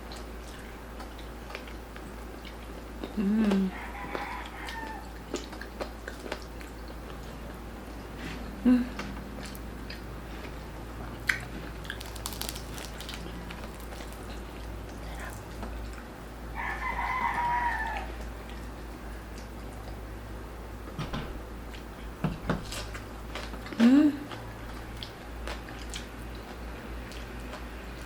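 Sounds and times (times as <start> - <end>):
rooster crowing: 3.7 - 5.2, 16.5 - 18.2
crunchy eating clicks: 11.3 - 15.8.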